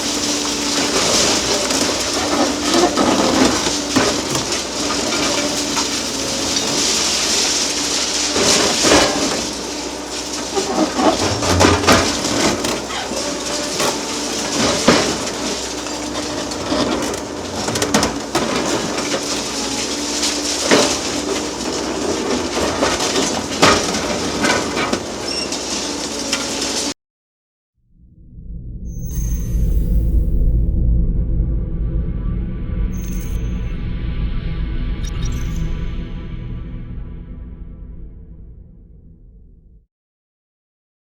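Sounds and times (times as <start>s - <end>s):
concrete cracking and crunching: 0.0s - 26.9s
excavator diesel engine running: 0.0s - 26.9s
debris falling: 0.0s - 27.0s.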